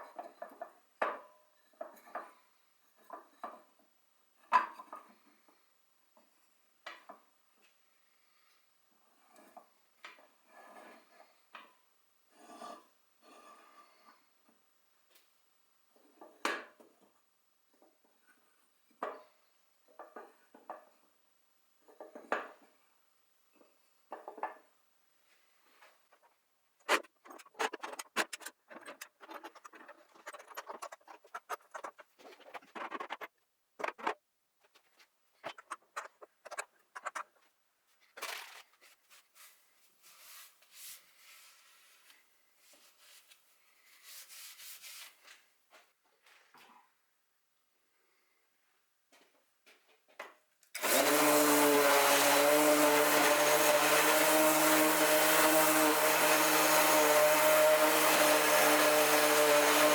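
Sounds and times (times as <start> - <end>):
scratching and rubbing: 26.1 - 37.4, 43.9 - 45.2.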